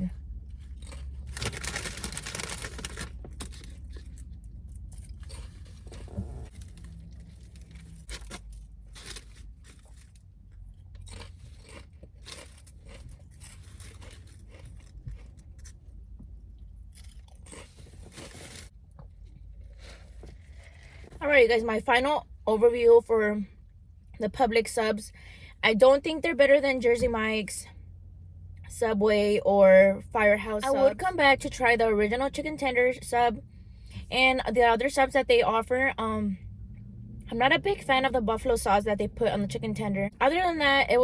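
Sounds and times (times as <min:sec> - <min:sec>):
person chewing crunchy food: 0:00.4 - 0:16.0, 0:16.6 - 0:21.2.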